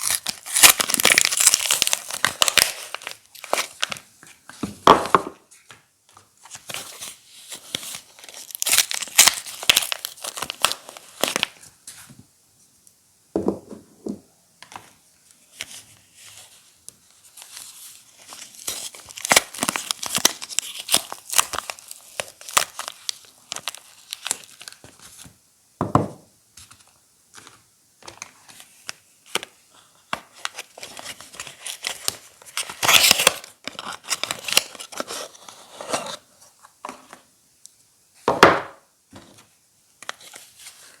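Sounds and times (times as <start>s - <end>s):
wrappers tearing and crinkling: 0.0s - 4.0s, 6.5s - 11.6s, 17.4s - 24.8s, 30.3s - 36.2s.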